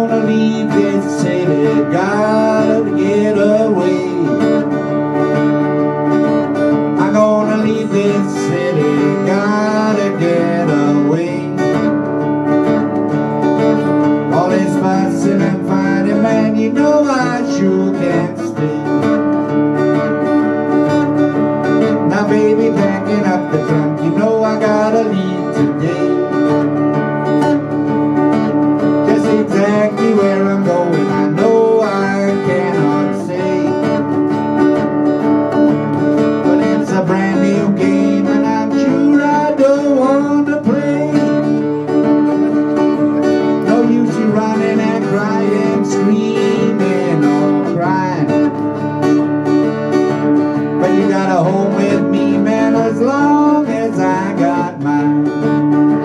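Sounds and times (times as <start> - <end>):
acoustic guitars playing: 0.0 - 56.0.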